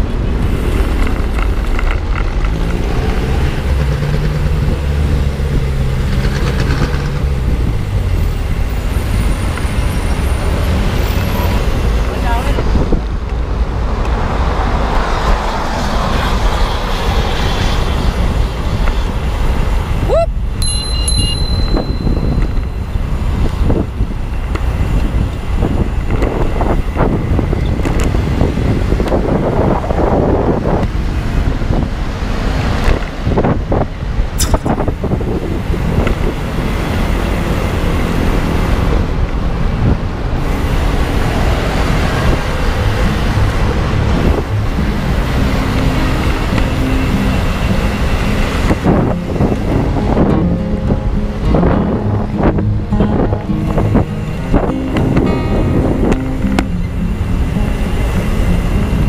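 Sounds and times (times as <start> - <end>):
road traffic: 0.0 - 59.0
wind buffeting microphone: 0.0 - 59.0
sharp click: 34.4 - 34.8.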